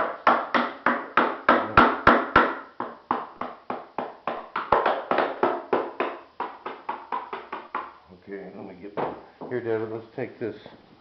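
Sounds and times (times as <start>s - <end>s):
hammer knocking on mold: 0.0s - 7.9s.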